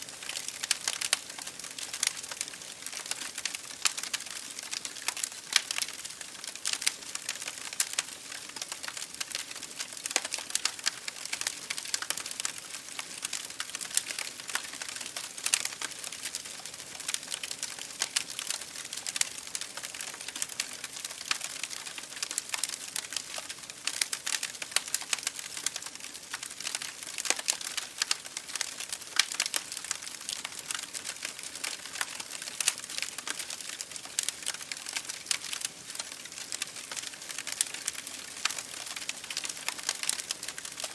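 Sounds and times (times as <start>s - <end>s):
campfire crackling: 0.0s - 40.9s.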